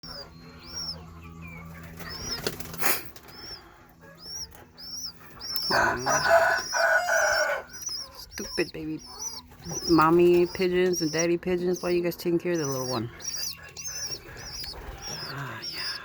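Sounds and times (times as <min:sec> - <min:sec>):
high repeating chirp: 0:03.3 - 0:16.0.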